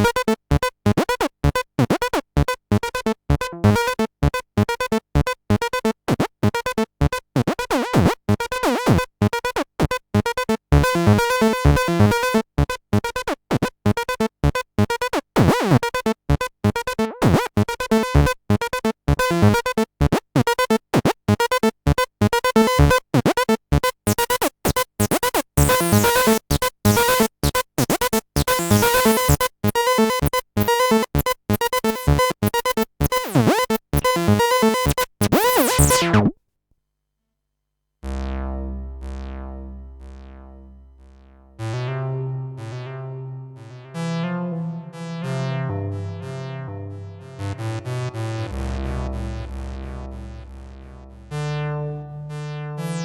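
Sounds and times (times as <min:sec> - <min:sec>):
staccato bass synthesizer pattern: 0:00.0 - 0:36.3, 0:38.0 - 0:53.0.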